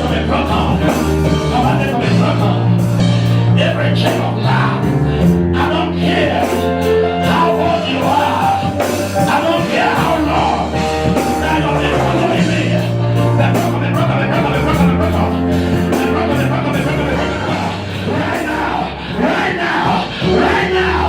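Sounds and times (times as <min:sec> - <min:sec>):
live band playing: 0:00.0 - 0:21.0
people singing: 0:00.0 - 0:21.0.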